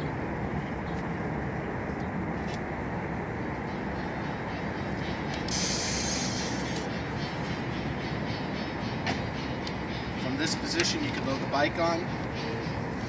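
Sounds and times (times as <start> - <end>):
hydraulic hiss: 5.5 - 6.9.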